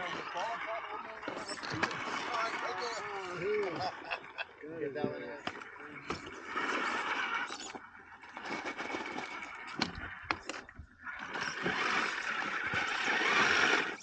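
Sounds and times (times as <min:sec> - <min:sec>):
toy truck drivetrain running: 0:06.1 - 0:14.0.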